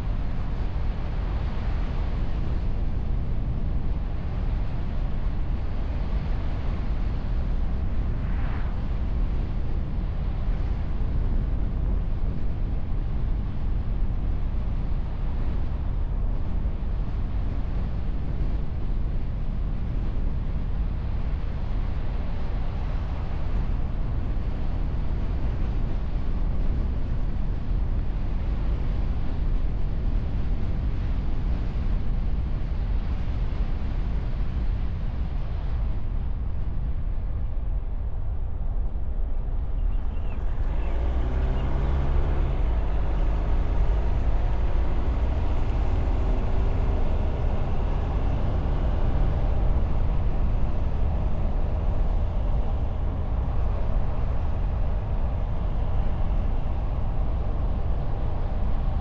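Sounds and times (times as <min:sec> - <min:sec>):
wind rumble on microphone: 0:00.0 - 0:59.0
tyre and engine noise: 0:39.8 - 0:59.0.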